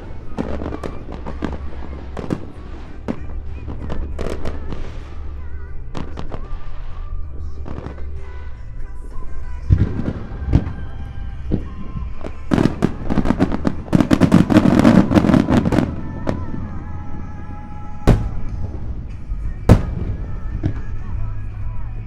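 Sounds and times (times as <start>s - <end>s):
faint music: 7.1s - 21.3s
fireworks crackling: 18.1s - 21.1s
fireworks booming: 18.1s - 21.2s.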